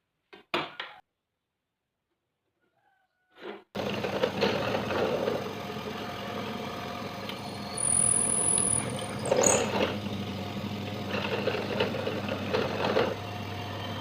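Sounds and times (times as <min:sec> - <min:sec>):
motor-driven machine running: 0:03.8 - 0:14.0.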